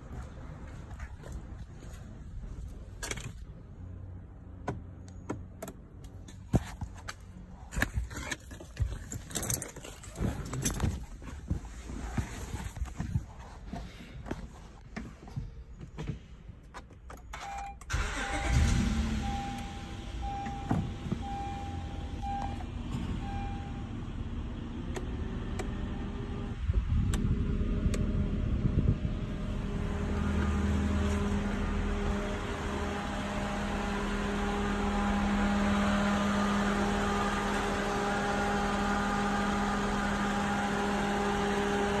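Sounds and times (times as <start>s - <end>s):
electronic car beep: 17.3s - 24.0s
car engine idling: 17.9s - 42.0s.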